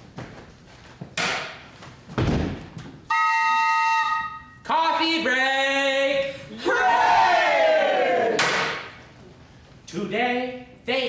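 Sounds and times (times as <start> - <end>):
loud thumps: 1.2 - 2.8
wind instrument held note: 3.1 - 4.6.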